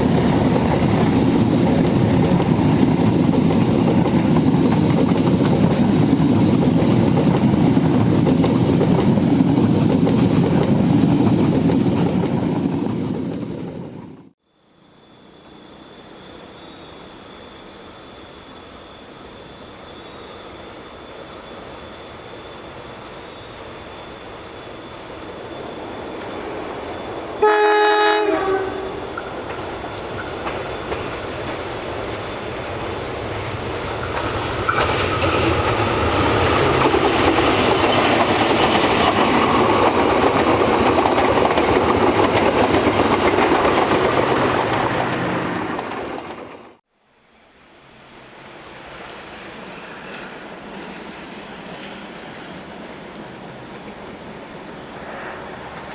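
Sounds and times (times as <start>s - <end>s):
train approaching: 0.0s - 55.9s
train horn blast: 27.4s - 29.2s
train wheels clattering over rail joints: 29.1s - 46.8s.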